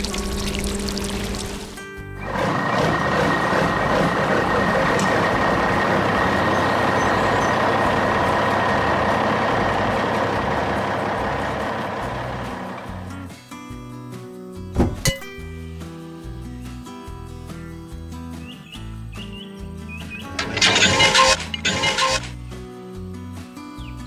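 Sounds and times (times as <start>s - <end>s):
heavy truck rushing noise: 0.0s - 13.1s, 20.3s - 22.3s.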